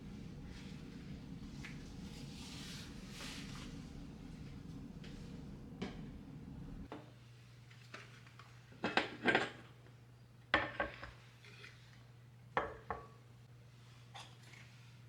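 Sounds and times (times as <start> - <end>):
low steady hum: 0.0 - 6.9.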